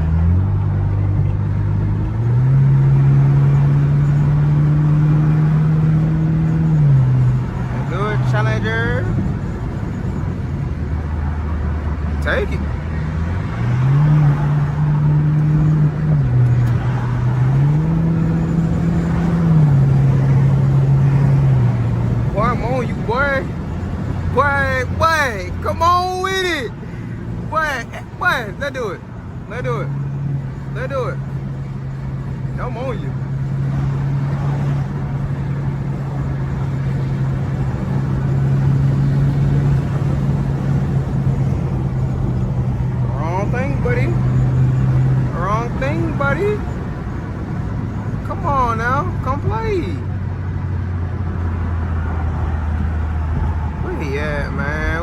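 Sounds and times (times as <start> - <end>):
car engine revving from cabin: 0.0 - 8.5, 13.1 - 22.4
car engine droning at steady revs: 0.0 - 55.0.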